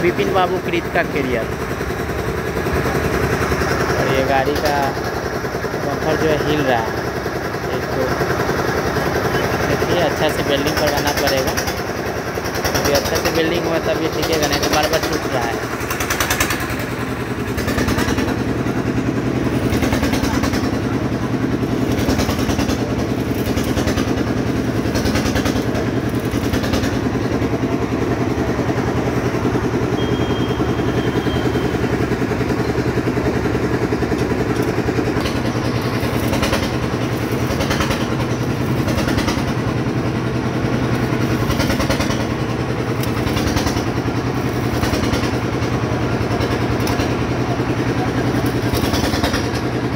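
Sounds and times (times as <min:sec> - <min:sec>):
engine running steadily: 0:00.0 - 0:49.9.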